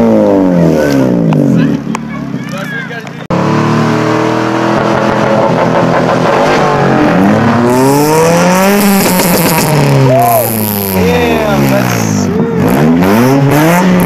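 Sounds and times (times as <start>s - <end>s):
car engine revving: 3.2s - 14.0s.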